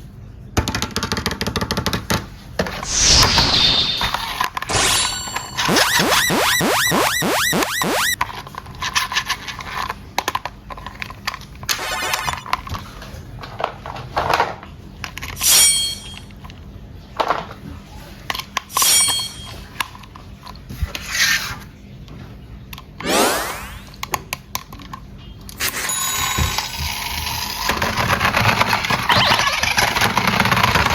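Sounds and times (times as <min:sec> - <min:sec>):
toys clicking and knocking: 0:00.6 - 0:12.8, 0:24.0 - 0:30.9
rising electronic sweeps: 0:02.9 - 0:08.2.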